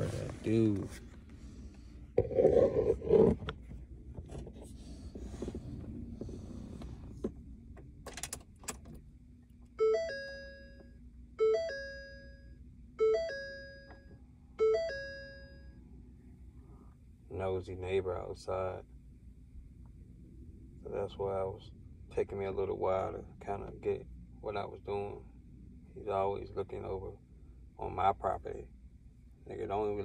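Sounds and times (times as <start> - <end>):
faint steady hum: 0.0 - 30.0
cabin warning chime: 9.8 - 15.8.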